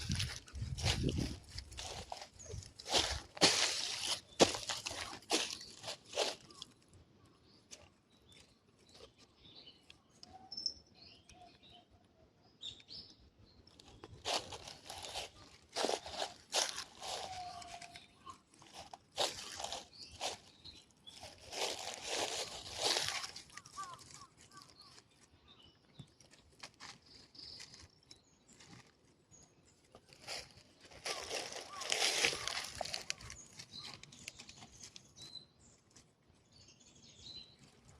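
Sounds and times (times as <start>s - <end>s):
crunching footsteps: 0.0s - 6.9s, 13.7s - 25.3s, 26.0s - 29.2s, 29.8s - 36.1s
faint bird chirps: 4.0s - 13.2s, 14.3s - 26.1s.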